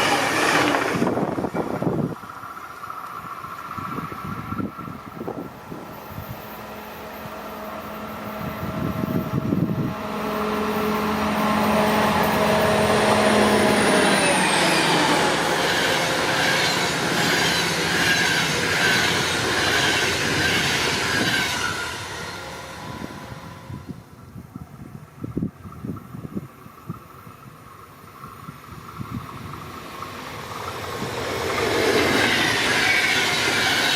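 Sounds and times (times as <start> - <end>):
locomotive engines droning: 0.0 - 33.9
train wheels rushing: 0.0 - 33.9.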